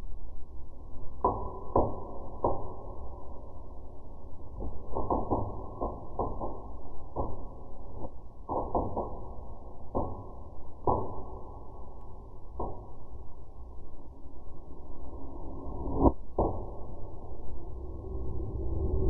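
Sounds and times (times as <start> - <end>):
low rumble: 13.7 - 19.0.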